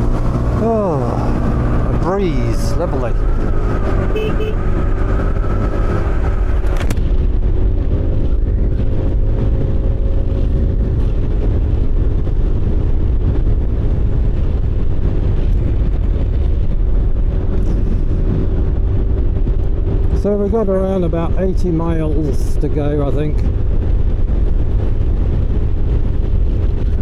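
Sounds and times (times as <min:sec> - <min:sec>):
motorcycle engine running: 0:00.0 - 0:20.2
wind rush on microphone: 0:00.0 - 0:27.0.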